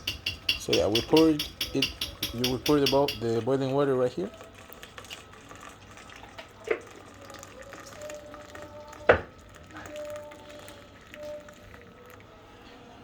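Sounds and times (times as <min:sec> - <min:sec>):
water pouring into container: 0:03.2 - 0:12.5.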